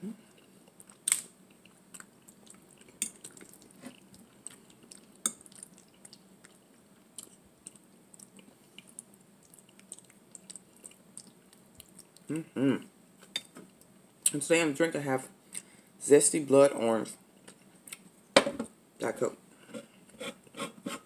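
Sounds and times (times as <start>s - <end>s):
person chewing pasta: 0.1s - 12.4s.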